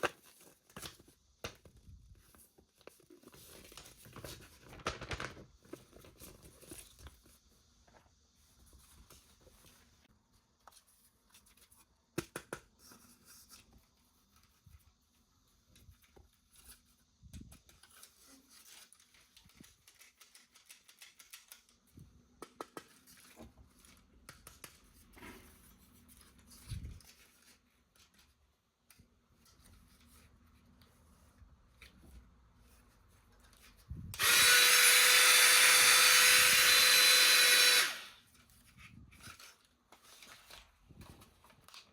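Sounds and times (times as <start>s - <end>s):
toy packaging being handled: 0.0s - 7.5s, 15.6s - 31.0s, 31.8s - 41.9s.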